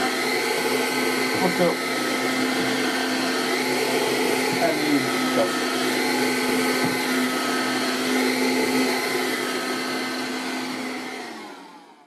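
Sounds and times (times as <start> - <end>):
vacuum cleaner running: 0.0 - 12.0
vacuum motor winding down: 0.0 - 12.0.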